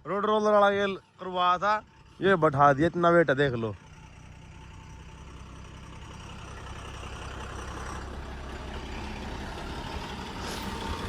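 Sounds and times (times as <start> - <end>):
heavy diesel engine running: 0.0 - 11.0.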